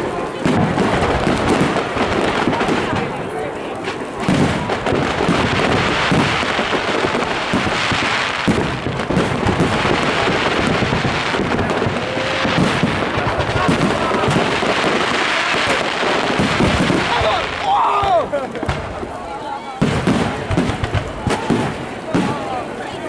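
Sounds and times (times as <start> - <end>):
fireworks bangs and crackling: 0.0 - 23.0.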